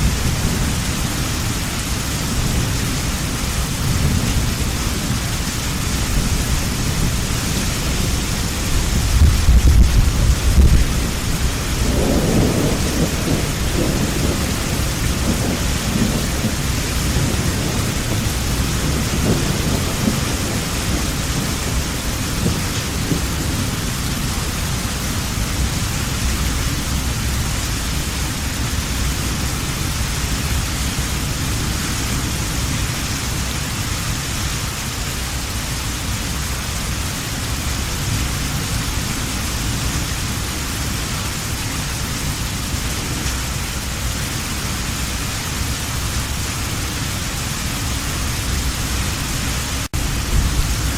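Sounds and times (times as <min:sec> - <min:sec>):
thunder rumbling: 0:00.0 - 0:32.9, 0:47.7 - 0:50.9
heavy rain falling: 0:00.0 - 0:50.9.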